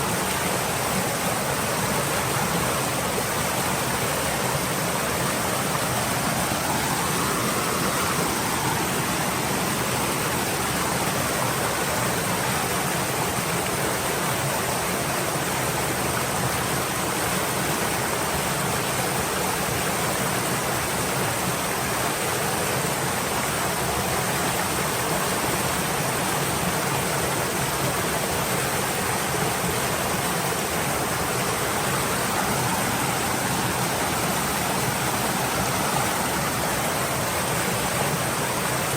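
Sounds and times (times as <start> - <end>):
stream water babbling: 0.0 - 38.9.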